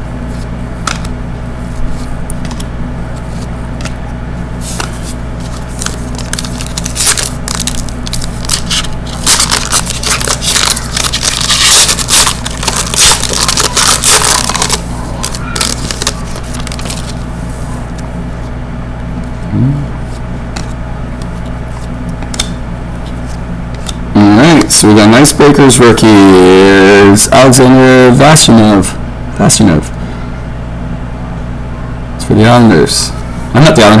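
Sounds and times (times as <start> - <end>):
steady low hum: 0.0 - 34.0
card packaging crinkling: 4.6 - 17.6.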